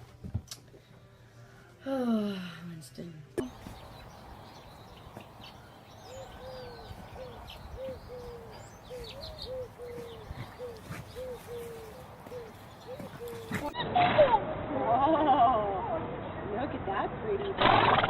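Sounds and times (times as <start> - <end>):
small birds chirping faintly: 3.0 - 13.8
dove cooing: 5.9 - 13.8.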